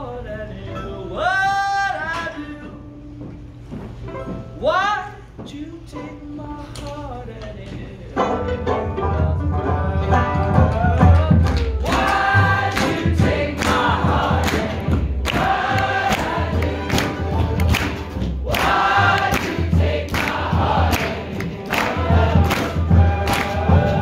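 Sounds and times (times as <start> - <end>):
plucked upright bass: 8.1 - 24.0
strummed strings: 8.2 - 24.0
voices singing together: 9.0 - 24.0.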